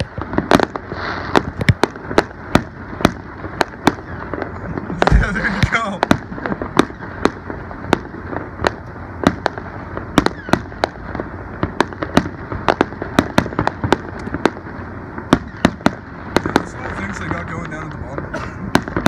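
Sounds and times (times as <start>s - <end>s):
fireworks bangs and pops: 0.0s - 19.0s.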